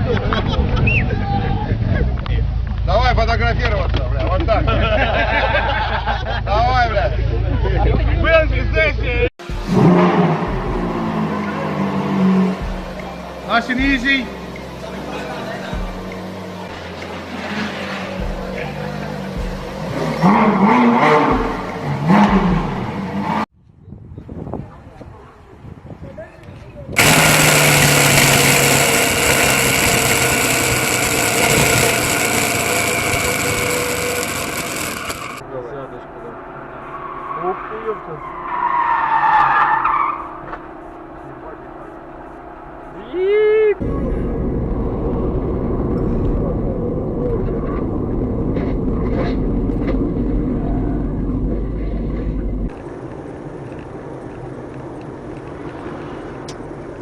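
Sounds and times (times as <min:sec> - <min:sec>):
traffic noise: 0:00.0 - 0:57.0
loud engine with whine: 0:09.4 - 0:23.5, 0:27.0 - 0:57.0.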